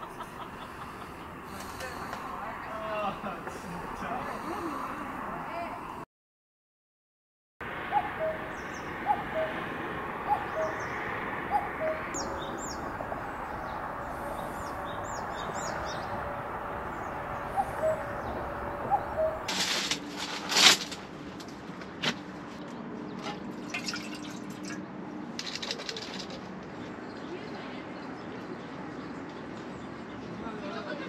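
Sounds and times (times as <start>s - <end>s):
higher bird chirps: 7.9s - 9.6s, 10.2s - 19.5s.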